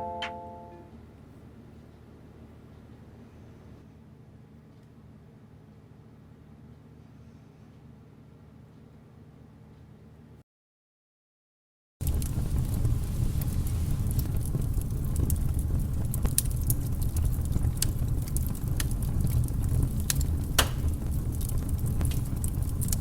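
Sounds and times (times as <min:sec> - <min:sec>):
low fire rumble: 0:12.0 - 0:23.0
wood fire crackling and popping: 0:12.0 - 0:23.0.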